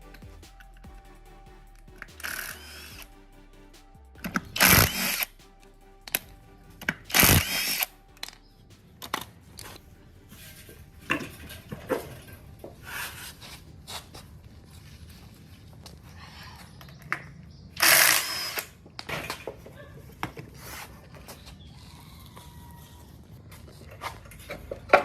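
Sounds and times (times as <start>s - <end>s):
quiet background music: 0.0s - 25.0s
power tool running: 2.2s - 3.0s, 4.6s - 5.3s, 7.0s - 7.9s, 17.8s - 18.7s.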